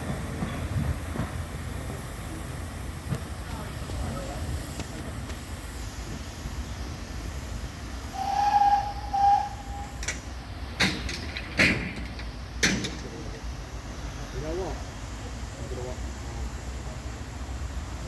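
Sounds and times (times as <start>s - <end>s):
steam exhaust beats: 0.0s - 18.0s
steam hissing: 0.0s - 18.0s
steam locomotive whistle: 8.1s - 10.1s.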